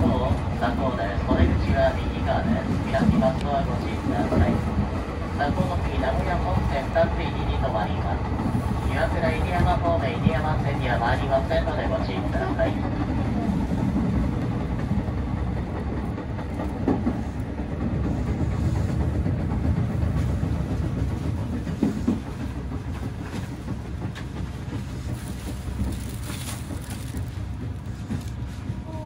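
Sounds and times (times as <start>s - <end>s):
sharp clicks of train: 0.0s - 29.0s
train wheels rumbling on rails: 0.0s - 29.0s.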